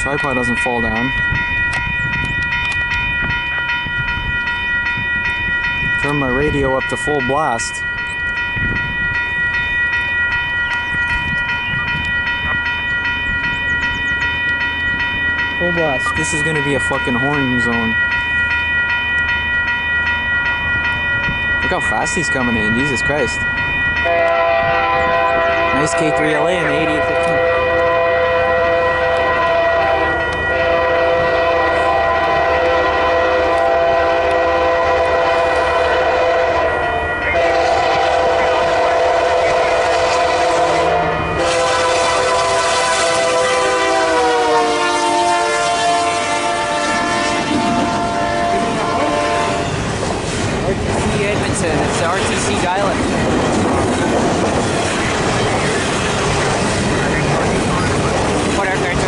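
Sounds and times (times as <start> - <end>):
wind rumbling on microphone: 0.0 - 6.6, 7.7 - 16.2, 22.8 - 25.8, 45.6 - 59.0
railroad crossing bell ringing: 0.0 - 59.0
train air horn chord: 24.0 - 49.6.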